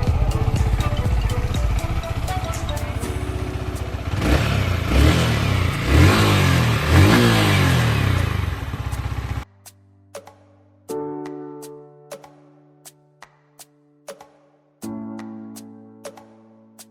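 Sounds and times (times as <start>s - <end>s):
motorcycle engine idling and revving: 0.0s - 9.5s.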